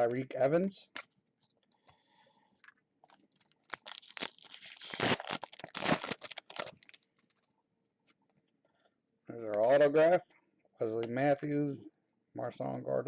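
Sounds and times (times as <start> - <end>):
wrapper tearing and crinkling: 3.0 - 7.4.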